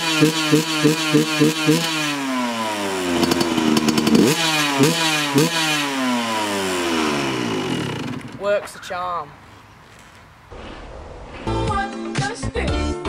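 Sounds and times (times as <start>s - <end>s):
motocross engine revving: 0.0s - 8.4s.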